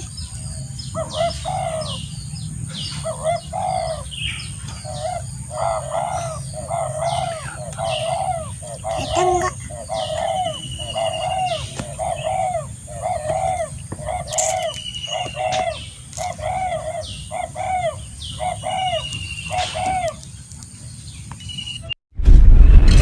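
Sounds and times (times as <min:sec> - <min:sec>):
bird short repeated calls: 0:04.7 - 0:20.2
high-pitched whine: 0:21.8 - 0:23.0.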